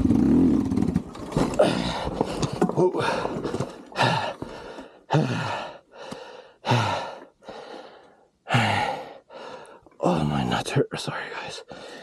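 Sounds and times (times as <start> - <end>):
man breathing heavily: 1.5 - 9.9, 11.6 - 12.0.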